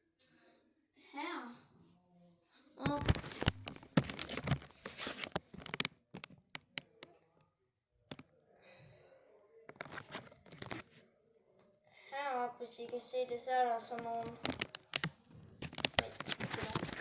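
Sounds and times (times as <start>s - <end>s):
rustling and crinkling: 2.8s - 7.0s, 9.7s - 11.1s, 13.8s - 17.0s
sharp clicks: 2.8s - 7.1s, 9.7s - 10.8s, 14.0s - 17.0s.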